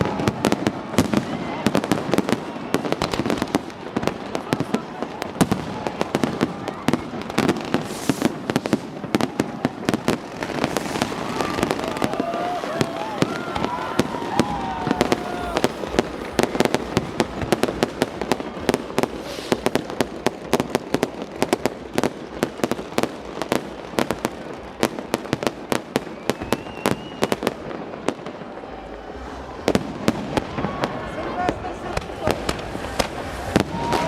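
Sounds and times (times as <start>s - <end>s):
fireworks bangs and crackles: 0.0s - 34.0s
firework whistle: 5.5s - 20.2s, 25.8s - 34.0s.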